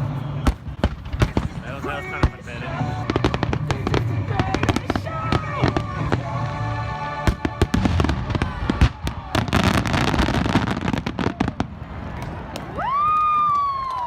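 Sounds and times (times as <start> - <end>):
fireworks bangs and crackling: 0.0 - 14.0
music playing: 1.4 - 9.9.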